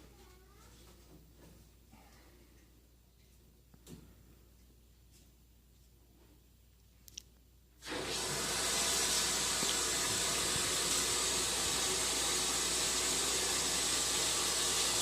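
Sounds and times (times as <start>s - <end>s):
water running from a tap: 7.8s - 15.0s.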